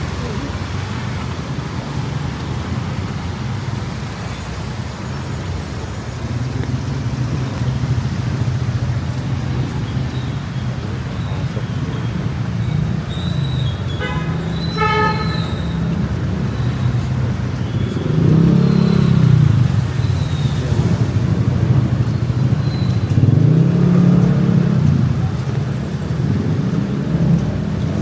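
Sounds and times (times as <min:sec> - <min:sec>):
vehicles passing: 0:00.0 - 0:28.0
car horn toots: 0:14.0 - 0:15.8.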